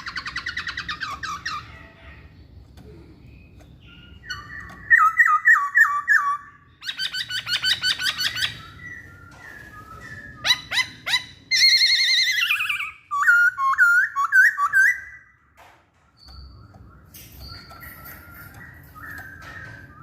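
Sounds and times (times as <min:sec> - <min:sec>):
bird singing whistled song: 0:03.4 - 0:15.4, 0:16.2 - 0:20.0.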